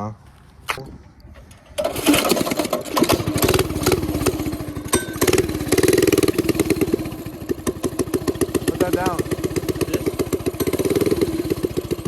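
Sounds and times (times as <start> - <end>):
small motorcycle engine running: 1.8 - 12.0.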